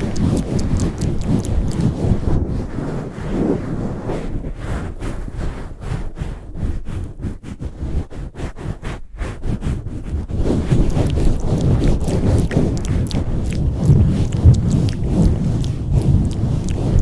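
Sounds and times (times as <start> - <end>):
muffled low rumble: 0.0 - 3.1, 10.6 - 17.0
hands rubbing over microphone: 0.0 - 17.0.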